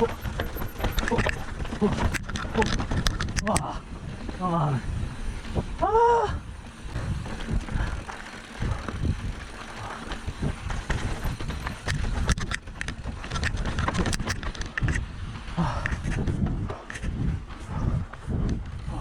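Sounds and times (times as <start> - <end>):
sharp clicks and rattles: 0.0 - 4.5, 6.7 - 17.2
bicycle rumble: 0.0 - 19.0
wind on microphone: 0.0 - 19.0.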